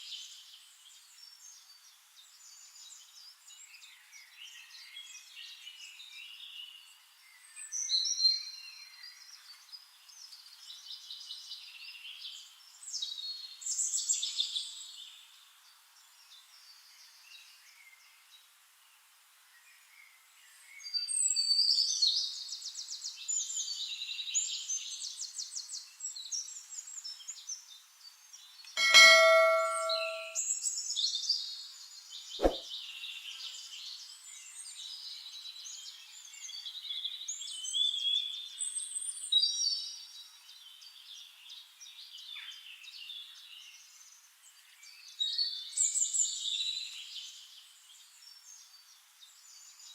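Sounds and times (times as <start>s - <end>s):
metallic bell-like ding: 28.8s - 30.4s.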